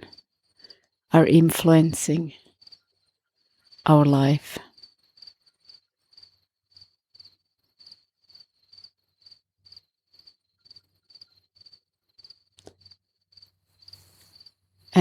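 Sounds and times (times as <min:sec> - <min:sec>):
cricket chirping: 0:02.4 - 0:03.9, 0:04.7 - 0:14.9.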